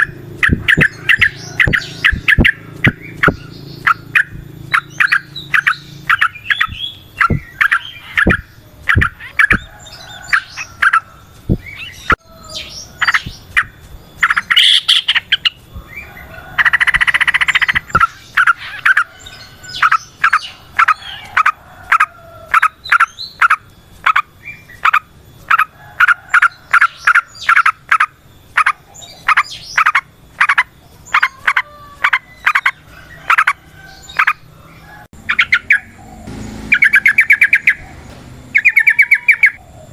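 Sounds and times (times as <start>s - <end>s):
bird singing bubbling notes: 0.0s - 19.1s, 35.2s - 39.9s
harsh buzzy bird note: 35.3s - 39.6s.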